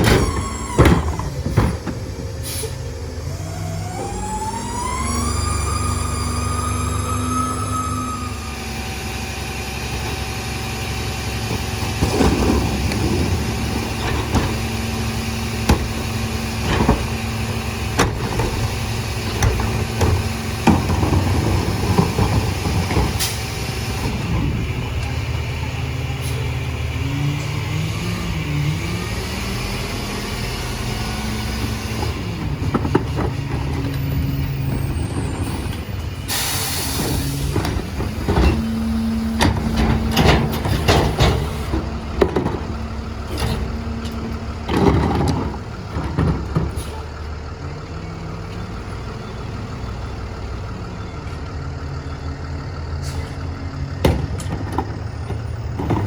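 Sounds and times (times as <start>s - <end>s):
clanks and knocks: 0.0s - 2.4s, 11.5s - 14.8s, 15.6s - 25.1s, 31.9s - 36.0s, 37.0s - 47.0s, 54.0s - 56.0s
garbage truck diesel engine running: 0.0s - 56.0s
air brake hiss: 2.4s - 2.8s, 36.3s - 37.6s, 53.0s - 53.4s.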